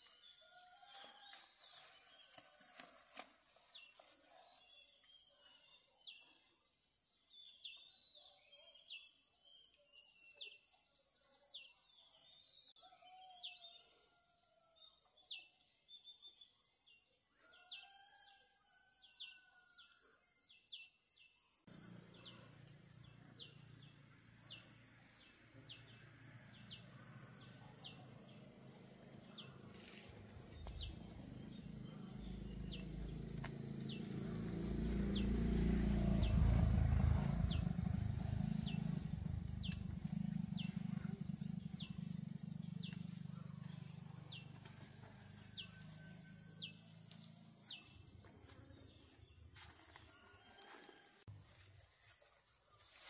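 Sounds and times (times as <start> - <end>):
bird chirping: 29.1 - 44.6
lower bird calls: 29.3 - 44.5.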